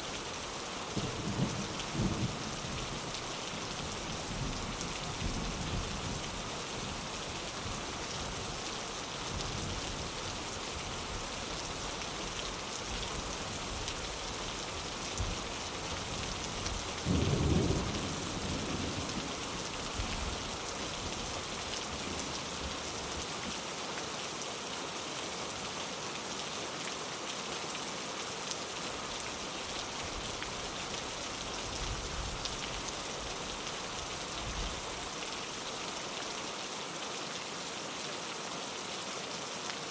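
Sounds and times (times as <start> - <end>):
rain on a window: 0.1 - 39.9
low rumble of thunder: 1.0 - 3.0, 16.7 - 19.4.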